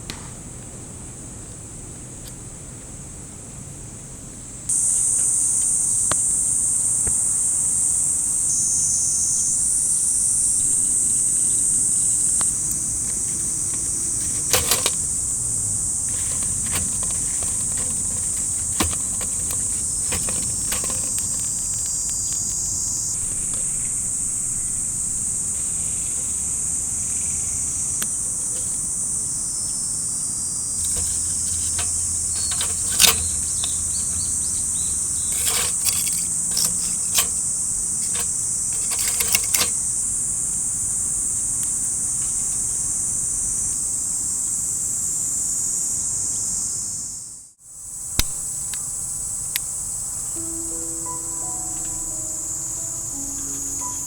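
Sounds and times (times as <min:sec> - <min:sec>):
high-pitched insect chorus: 0:04.7 - 0:54.0
sharp clicks: 0:30.8 - 0:39.8.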